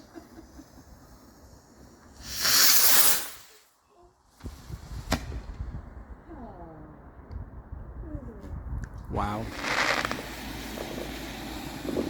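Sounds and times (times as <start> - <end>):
firework hissing: 0.0 - 3.7, 9.4 - 12.0
firework sharp crack: 2.2 - 3.7, 9.4 - 11.2.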